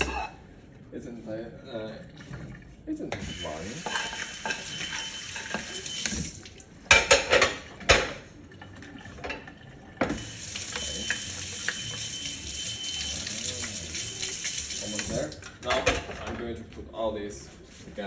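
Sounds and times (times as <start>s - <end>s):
dishes clinking: 0.0s - 0.4s, 3.2s - 5.8s, 6.9s - 8.2s
tap water running into sink: 3.2s - 7.0s, 10.0s - 16.0s.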